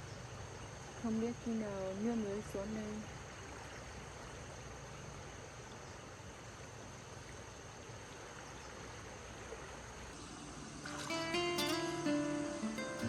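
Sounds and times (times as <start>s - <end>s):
low even hiss: 0.0s - 13.0s
high-pitched insect drone: 10.2s - 13.0s.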